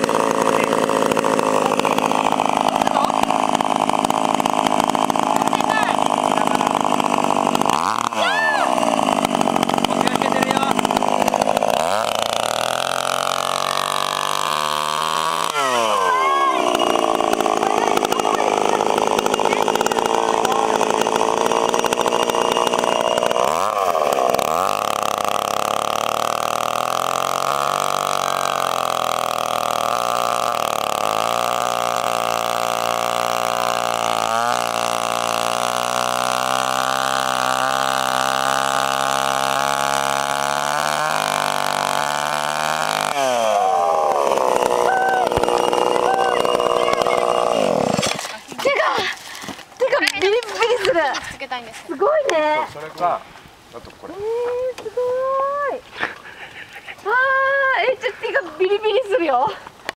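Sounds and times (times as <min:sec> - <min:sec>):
chainsaw engine running: 0:00.0 - 0:59.9.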